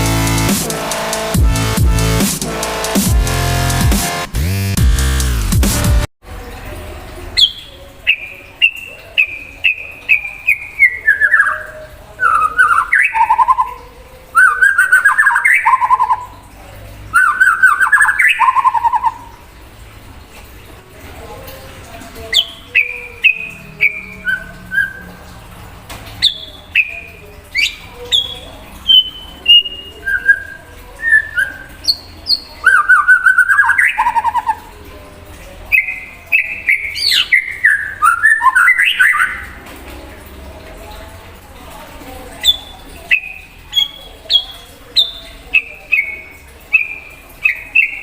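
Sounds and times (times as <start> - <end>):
bird singing whistled notes and trills: 7.4 - 16.4, 17.1 - 19.3, 22.3 - 25.2, 26.2 - 34.8, 35.7 - 39.6, 42.4 - 48.0.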